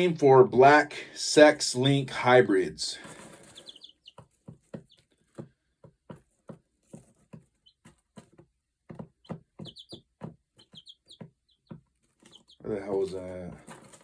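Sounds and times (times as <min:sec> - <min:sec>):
small bird chirping: 0:03.4 - 0:05.2, 0:07.5 - 0:08.0, 0:09.2 - 0:13.3.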